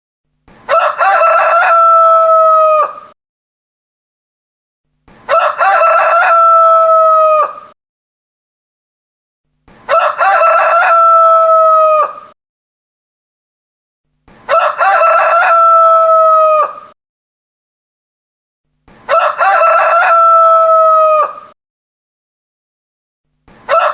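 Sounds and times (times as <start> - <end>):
rooster crowing: 0.7 - 3.2, 5.3 - 7.8, 9.9 - 12.4, 14.5 - 17.0, 19.1 - 21.6, 23.7 - 23.9.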